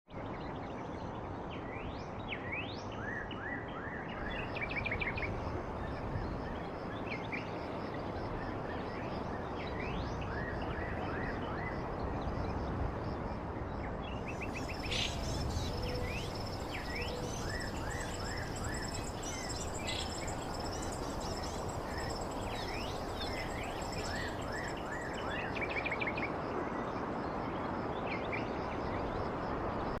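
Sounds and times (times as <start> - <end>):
birds chirping: 14.2 - 25.2
background hiss: 14.2 - 25.5
high-pitched insect buzz: 14.6 - 24.8.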